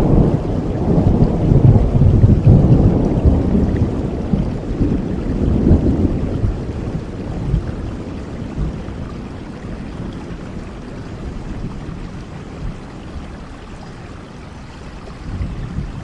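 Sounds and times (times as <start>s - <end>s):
deep rumble: 0.0s - 7.8s
steady rain hiss: 0.0s - 16.0s.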